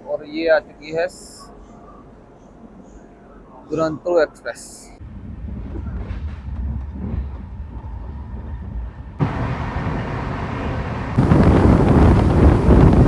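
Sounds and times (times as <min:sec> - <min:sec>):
passenger train rumbling on rails: 0:05.0 - 0:13.0.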